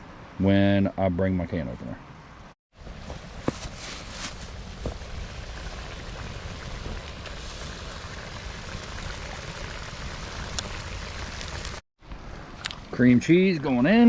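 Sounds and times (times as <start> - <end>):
food sizzling in a pot: 4.9 - 11.8.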